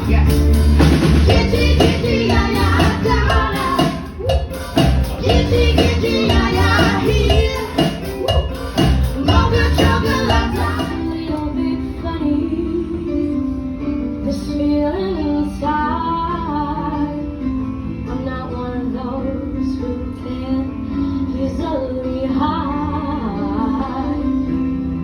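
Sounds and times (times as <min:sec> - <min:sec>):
steady drum beat: 0:00.0 - 0:11.1
band playing: 0:00.0 - 0:11.4
woman singing: 0:09.2 - 0:13.6, 0:14.2 - 0:17.4, 0:18.1 - 0:24.7.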